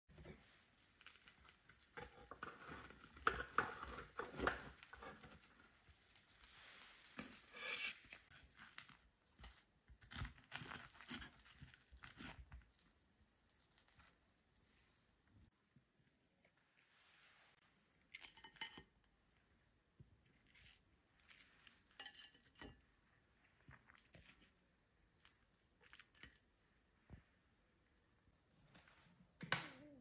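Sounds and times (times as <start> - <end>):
rustling and crinkling: 0.1 - 15.6, 20.2 - 27.4.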